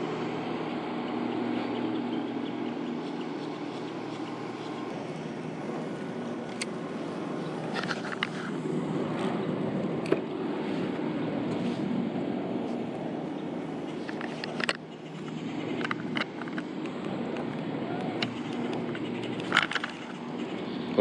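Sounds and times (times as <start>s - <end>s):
electric trolling motor humming: 0.0s - 21.0s
sharp clicks and ticks: 14.0s - 20.6s.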